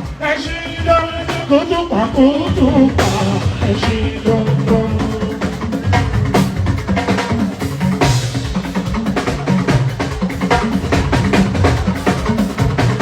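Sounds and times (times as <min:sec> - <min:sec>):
fast drumming: 0:00.0 - 0:13.0
bass line: 0:09.6 - 0:13.0.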